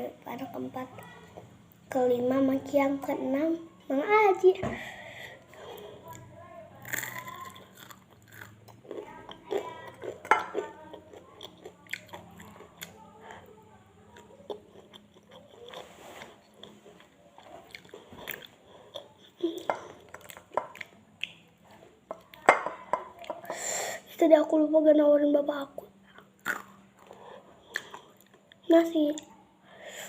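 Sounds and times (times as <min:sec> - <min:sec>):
chewing crispy fried chicken: 0:05.6 - 0:13.5, 0:14.1 - 0:22.5.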